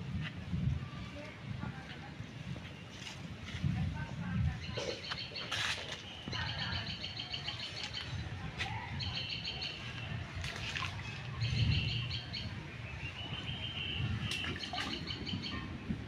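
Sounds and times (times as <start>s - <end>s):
songbird chirping: 4.4s - 16.0s.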